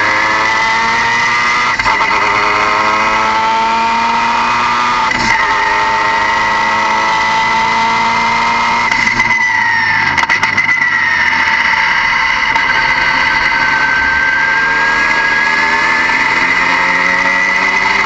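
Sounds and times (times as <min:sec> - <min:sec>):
car engine whining: 0:00.0 - 0:18.0.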